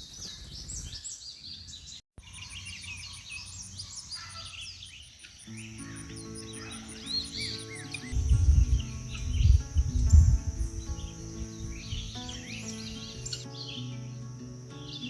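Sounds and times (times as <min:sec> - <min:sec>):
wild birds chirping: 0:00.0 - 0:15.0
background music sustained notes: 0:05.5 - 0:15.0.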